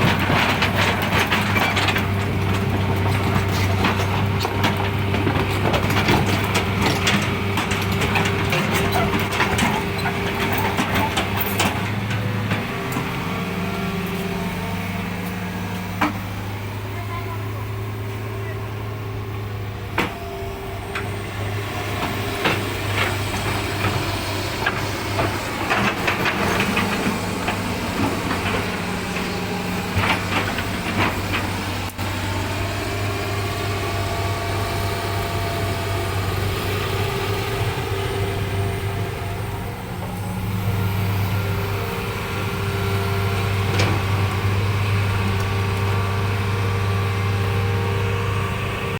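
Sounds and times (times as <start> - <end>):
excavator diesel engine humming: 0.0 - 48.9.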